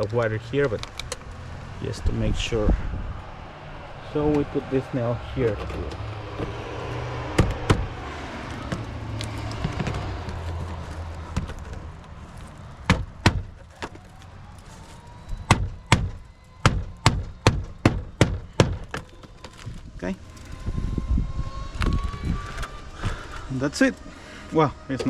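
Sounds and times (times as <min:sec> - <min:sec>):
hammer striking a nail: 0:07.3 - 0:07.9, 0:15.5 - 0:19.0.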